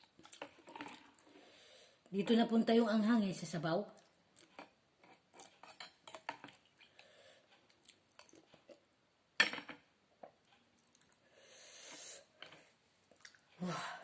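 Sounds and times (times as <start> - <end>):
soft eating sounds: 0.0 - 2.1, 3.9 - 8.9, 10.2 - 14.0.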